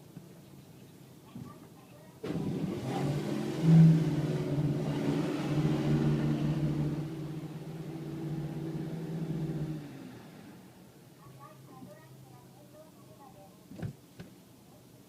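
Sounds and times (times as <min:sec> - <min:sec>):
car wash motor hum: 0:02.2 - 0:12.4.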